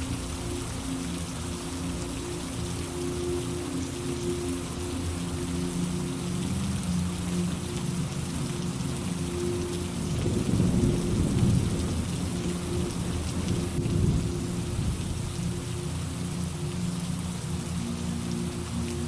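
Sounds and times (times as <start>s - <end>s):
steady rain falling: 0.0s - 19.0s
thunder rumbling: 10.1s - 15.5s.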